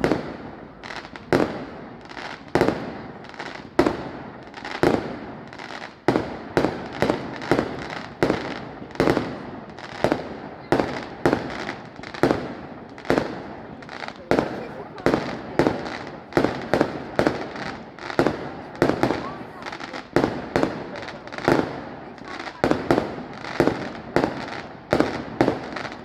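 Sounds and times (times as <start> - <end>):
aerial fireworks exploding: 0.0 - 26.0.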